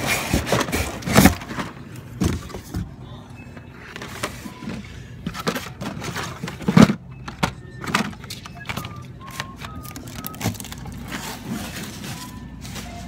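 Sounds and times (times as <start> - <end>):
toy cars in blister packs clacking: 5.3 - 12.4.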